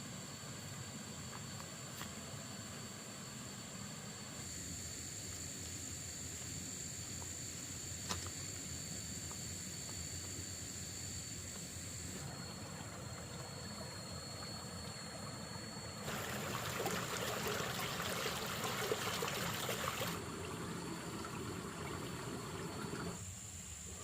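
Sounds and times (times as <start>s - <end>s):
water pouring and splashing: 12.3s - 23.2s.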